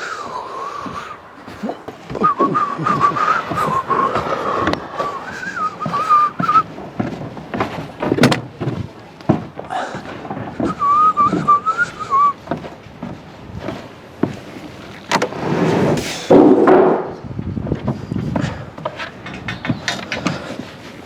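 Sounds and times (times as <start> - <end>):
knocks and thuds of work: 0.9 - 14.4, 15.1 - 20.8
person whistling a tune: 2.1 - 6.7, 10.6 - 12.4.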